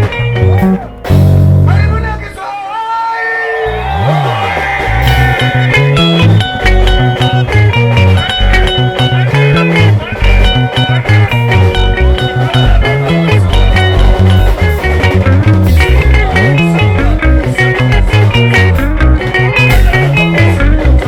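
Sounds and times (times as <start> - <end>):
picked lead guitar lines: 0.0 - 2.4, 3.6 - 21.0
sliding bass guitar line: 0.0 - 2.4, 3.6 - 21.0
steady beat: 0.0 - 2.7, 3.6 - 21.0.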